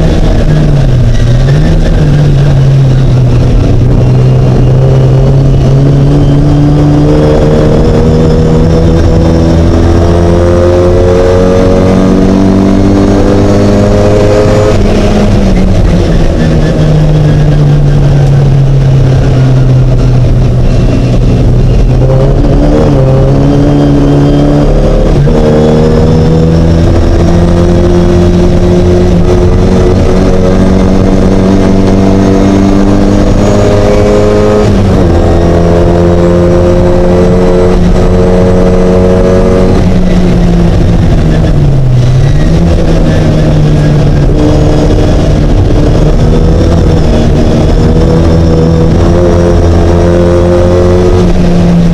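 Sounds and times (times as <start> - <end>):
race car engine revving: 0.0 - 51.9.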